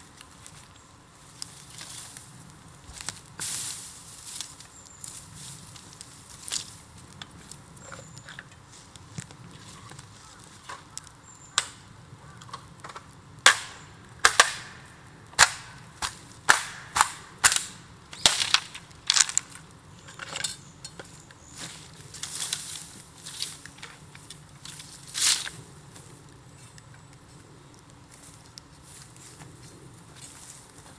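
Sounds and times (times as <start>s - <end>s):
bamboo crackling in a bonfire: 0.0s - 30.9s
loud bangs of bursting bamboo: 13.4s - 19.5s.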